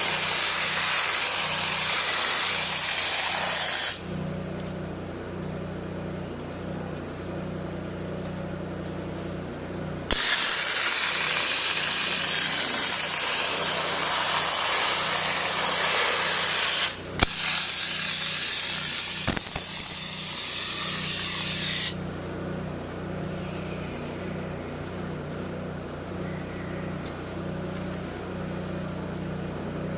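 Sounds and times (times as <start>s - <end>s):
dry ice blaster hissing: 0.0s - 4.1s, 10.1s - 22.1s
low machine hum: 4.0s - 10.1s, 22.0s - 29.9s.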